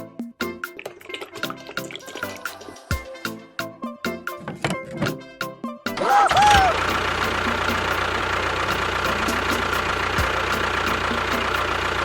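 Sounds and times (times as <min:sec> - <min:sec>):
motor running: 0:06.2 - 0:12.0.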